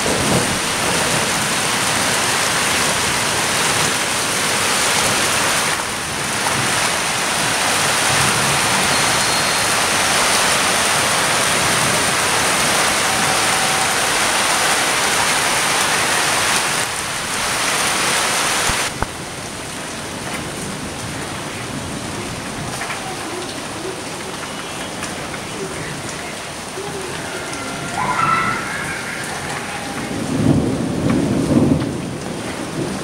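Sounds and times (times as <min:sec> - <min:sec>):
light rain patter with drips: 0:00.0 - 0:33.0
rain hissing: 0:00.0 - 0:33.0.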